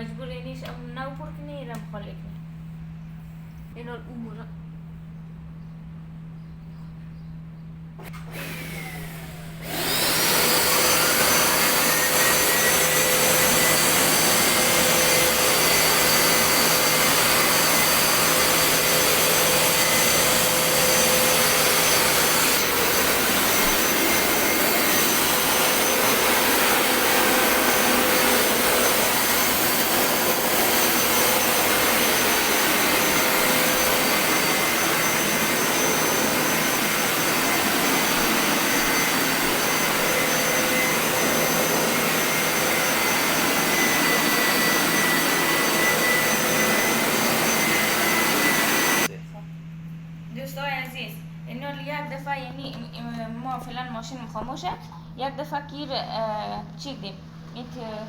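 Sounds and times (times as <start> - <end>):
machine motor whining: 8.0 - 49.1.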